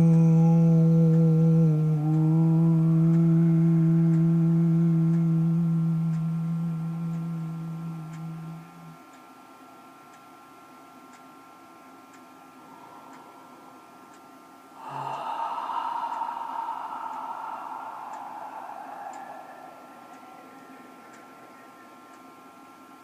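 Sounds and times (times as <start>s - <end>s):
low tone: 0.0s - 9.0s, 12.6s - 22.9s
woman humming low note: 0.0s - 9.0s
clock ticking faintly: 0.0s - 23.0s.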